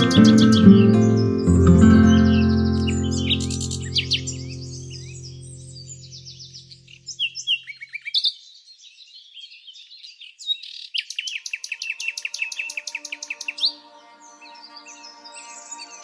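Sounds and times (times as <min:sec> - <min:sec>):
soft background music: 0:00.0 - 0:06.0
birds chirping and singing: 0:00.0 - 0:06.5.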